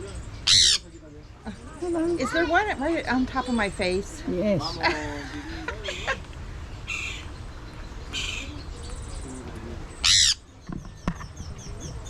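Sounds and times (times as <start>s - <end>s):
parrots squawking: 0.4s - 1.0s, 4.6s - 6.2s, 6.8s - 7.4s, 8.1s - 8.7s, 10.0s - 10.5s.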